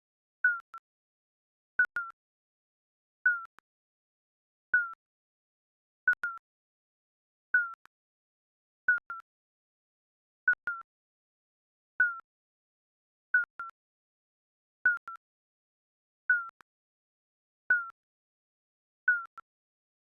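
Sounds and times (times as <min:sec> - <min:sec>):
electronic timer beep: 0:01.8 - 0:02.2, 0:14.9 - 0:15.2.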